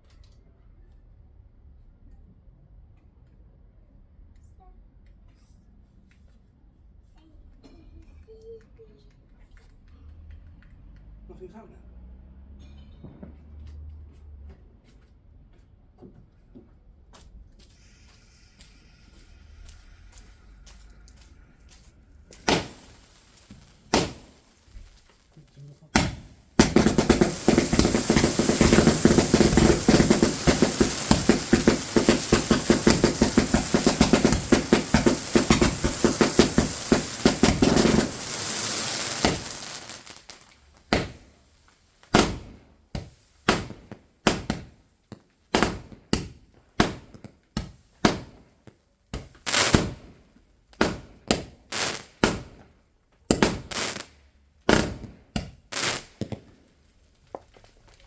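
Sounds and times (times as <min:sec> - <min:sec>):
fireworks crackling: 0:18.1 - 0:44.8, 0:45.5 - 0:48.5, 0:49.2 - 0:52.7, 0:53.3 - 0:58.0
fireworks bangs: 0:22.3 - 0:44.8, 0:45.5 - 0:48.5, 0:49.2 - 0:52.7, 0:53.3 - 0:54.1, 0:54.7 - 0:56.6.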